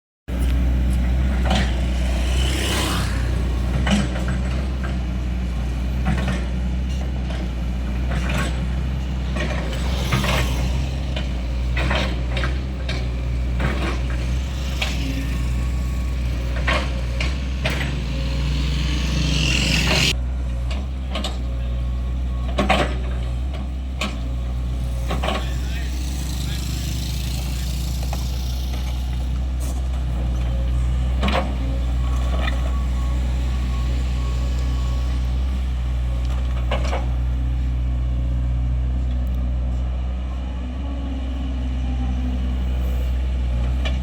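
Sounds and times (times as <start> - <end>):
excavator knocks and clanks: 0.3 - 2.8, 3.5 - 18.8, 19.9 - 27.1, 27.8 - 39.8, 41.8 - 44.0
excavator diesel engine drone: 0.3 - 44.0.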